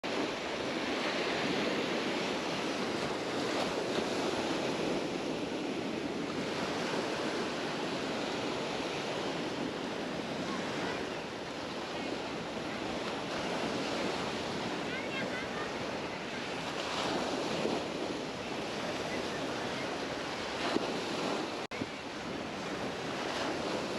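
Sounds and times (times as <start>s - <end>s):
small waves breaking on sand: 0.0s - 23.9s.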